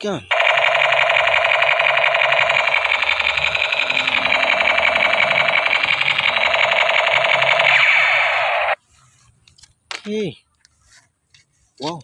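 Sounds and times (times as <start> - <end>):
toy gun buzzing rattle: 0.3 - 8.8.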